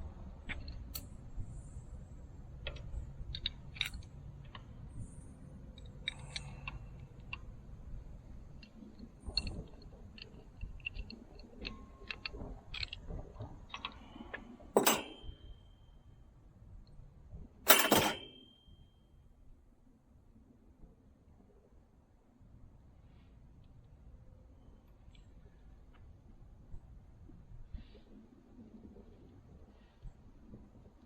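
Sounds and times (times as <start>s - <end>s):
metal fittings and tools clinking: 14.8s - 15.4s, 17.7s - 18.5s
ringing metal clank: 14.8s - 15.5s, 17.7s - 18.7s.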